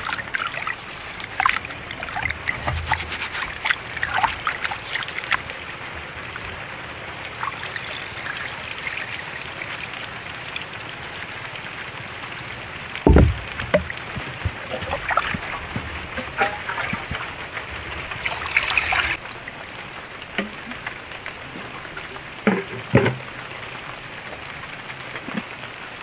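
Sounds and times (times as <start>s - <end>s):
water trickling and splashing: 0.0s - 26.0s
heavy low thump: 13.0s - 14.6s.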